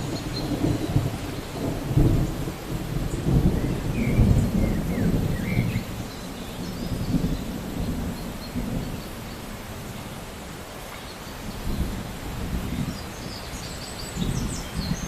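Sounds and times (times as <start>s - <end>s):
thunder rumbling: 0.0s - 9.3s
steady rain: 0.0s - 15.0s.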